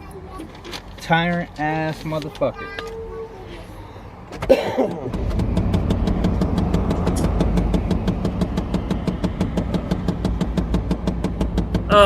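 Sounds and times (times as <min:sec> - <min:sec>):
pickup truck engine idling: 0:04.9 - 0:12.0
rapid engine ticking: 0:05.0 - 0:12.0.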